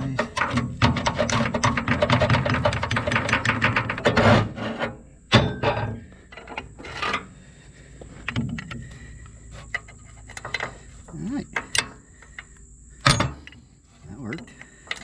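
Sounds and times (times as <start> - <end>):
tapping on steel mower deck: 0.0 - 4.6
metal scraping: 0.0 - 7.5.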